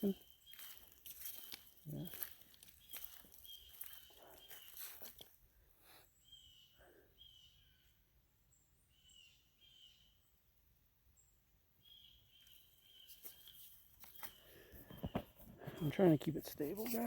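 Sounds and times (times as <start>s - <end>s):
faint bird calls: 0.0s - 5.2s
higher bird chirps: 0.0s - 5.2s, 6.1s - 8.0s.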